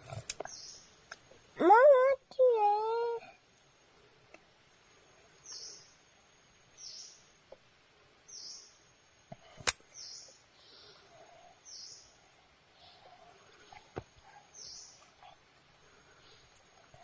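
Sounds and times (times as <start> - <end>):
bird chirping: 0.4 - 1.0, 5.3 - 7.4, 8.2 - 9.0, 9.9 - 15.4.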